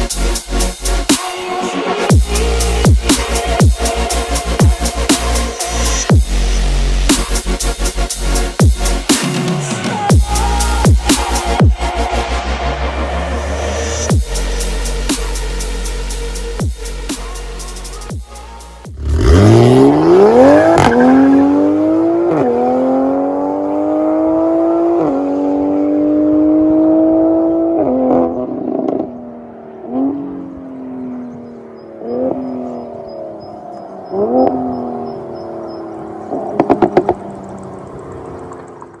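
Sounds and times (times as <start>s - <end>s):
car engine accelerating hard: 18.9s - 39.0s
exhaust pops: 36.3s - 39.0s.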